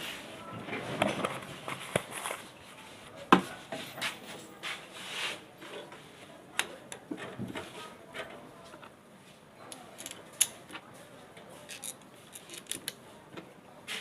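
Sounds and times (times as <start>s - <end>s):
soft rubbing and scraping: 0.0s - 6.4s.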